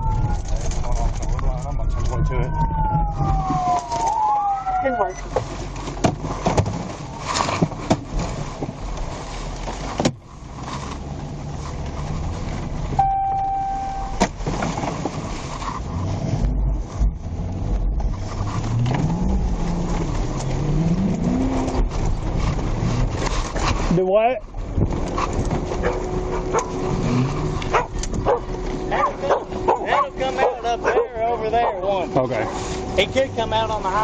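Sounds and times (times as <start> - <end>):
car engine and road rumble: 0.0 - 34.0
short electronic beep: 13.0 - 14.2.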